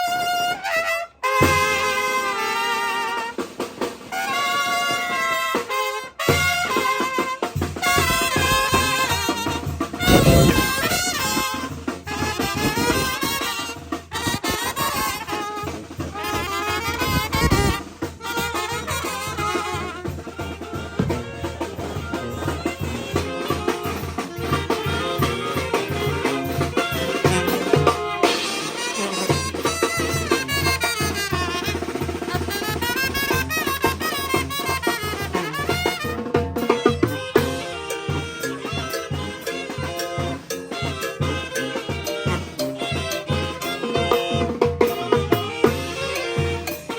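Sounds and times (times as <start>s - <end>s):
brass band horns playing: 0.0s - 46.9s
bass drum beats: 7.7s - 27.8s.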